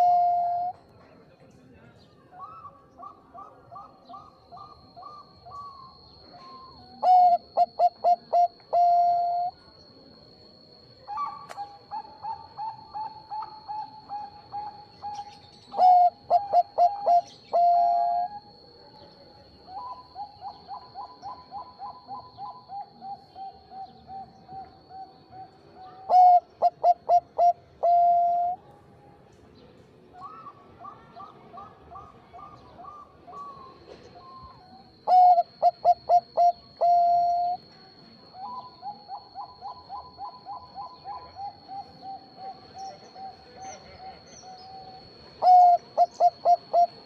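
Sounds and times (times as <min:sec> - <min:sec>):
dove cooing loudly: 0:00.0 - 0:00.7, 0:06.6 - 0:09.6, 0:11.1 - 0:18.4, 0:19.8 - 0:28.6, 0:35.1 - 0:37.6, 0:38.4 - 0:47.0.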